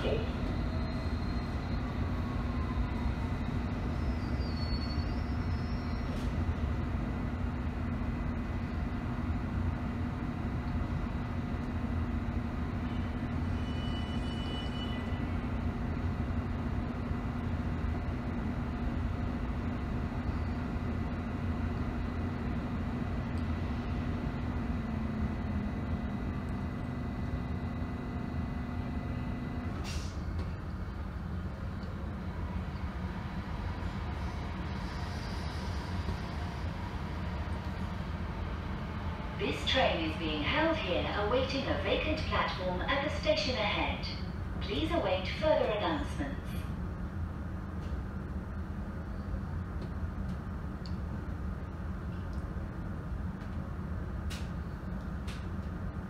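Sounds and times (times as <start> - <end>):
train interior electrical hum: 0.0 - 56.0
brief high squeal: 3.9 - 6.3, 13.4 - 15.2
click: 49.8 - 51.0, 52.2 - 52.5.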